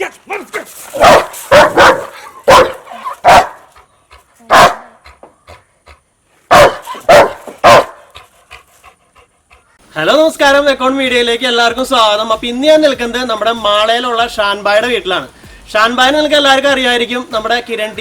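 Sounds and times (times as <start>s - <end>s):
dog barking loudly: 0.9s - 3.7s, 4.5s - 5.2s, 6.5s - 8.2s.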